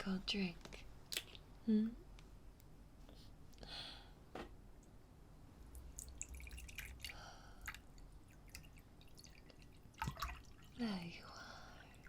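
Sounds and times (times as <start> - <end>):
liquid dripping: 5.7 - 12.0.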